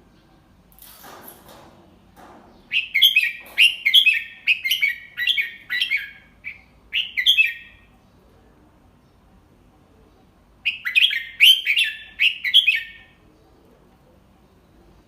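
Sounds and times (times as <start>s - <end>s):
bird singing chirpy whistled notes: 10.7s - 13.0s.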